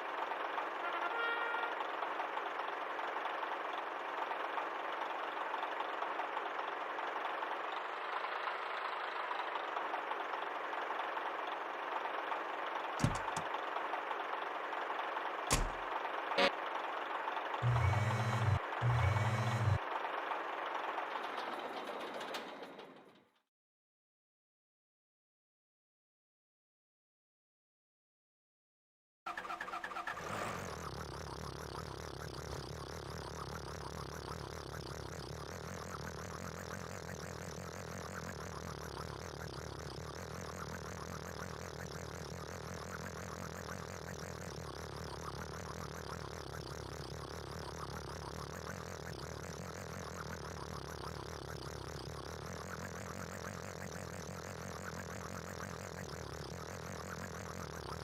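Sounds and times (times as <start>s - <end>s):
small motor whirring: 13.0s - 13.5s, 17.6s - 19.8s, 30.2s - 58.0s.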